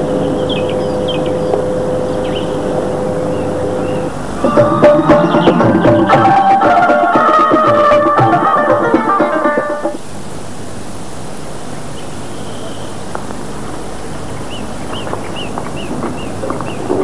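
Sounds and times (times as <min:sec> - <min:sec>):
bird chirping: 0:00.0 - 0:06.5, 0:11.9 - 0:13.0, 0:14.3 - 0:17.0
steady hiss: 0:01.4 - 0:17.0
folk music with tabla: 0:04.4 - 0:10.0.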